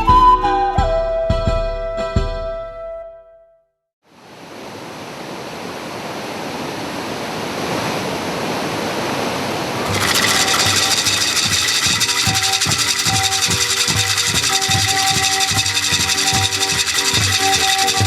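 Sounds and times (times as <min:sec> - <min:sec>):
high pulsing sound: 0:09.9 - 0:18.0.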